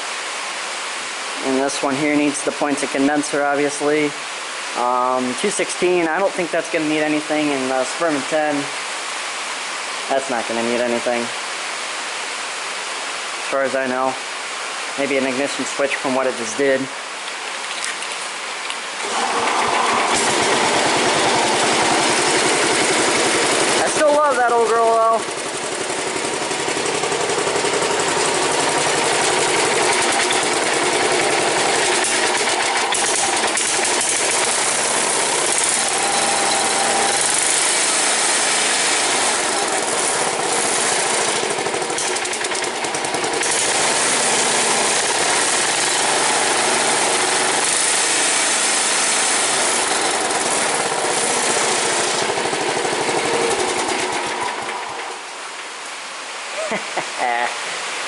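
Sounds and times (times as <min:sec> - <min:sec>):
tractor engine running: 0:19.0 - 0:55.2.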